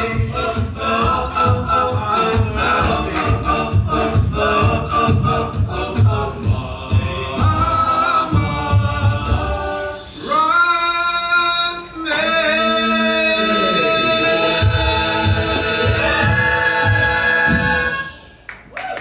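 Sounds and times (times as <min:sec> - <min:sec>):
low thumping beat: 0:00.0 - 0:10.0, 0:14.6 - 0:18.0
men singing in close harmony: 0:00.0 - 0:18.3.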